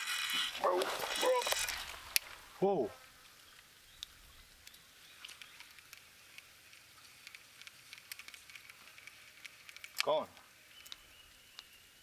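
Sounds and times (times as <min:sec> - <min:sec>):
faint outdoor hiss: 0:00.0 - 0:12.0
light ticks: 0:03.5 - 0:11.7.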